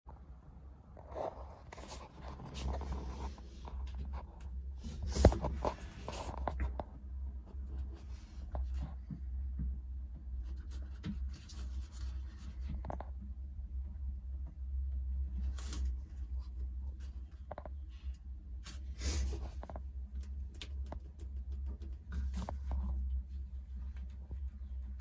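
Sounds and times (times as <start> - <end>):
scraping and rustling handling: 1.0 - 6.9.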